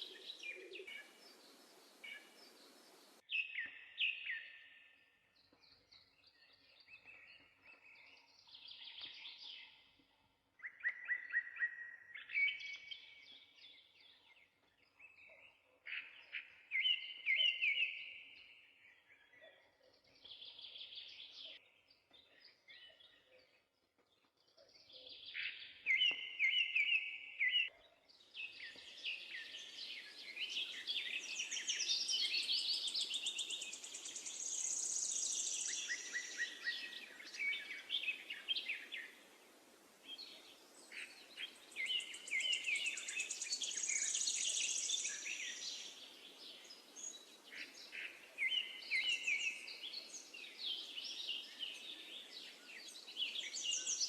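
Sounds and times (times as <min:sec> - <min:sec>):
songbirds singing: 0:00.0 - 0:54.0
steady background hiss: 0:00.9 - 0:03.2.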